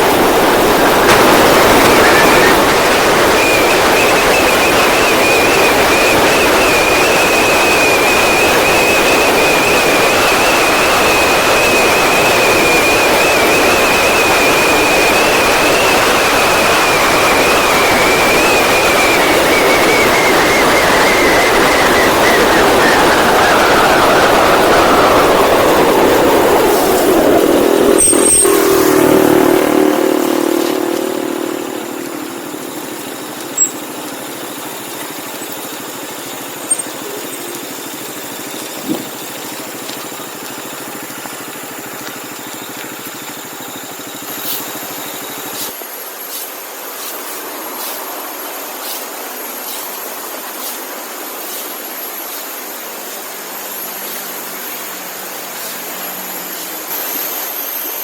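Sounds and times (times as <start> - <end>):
motorcycle engine: 0.0 - 45.8
steady hiss: 0.0 - 58.0.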